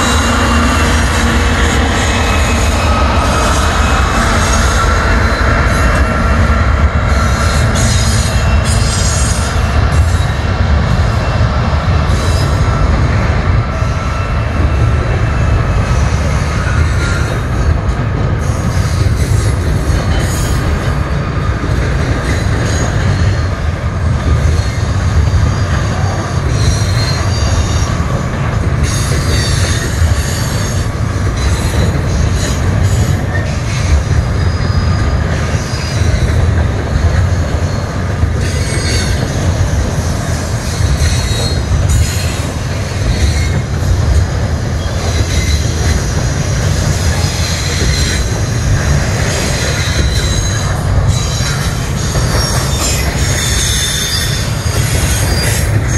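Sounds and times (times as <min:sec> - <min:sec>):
steel wheels rumbling on track: 0:00.0 - 0:55.9
high-pitched wheel squeal: 0:49.3 - 0:55.9.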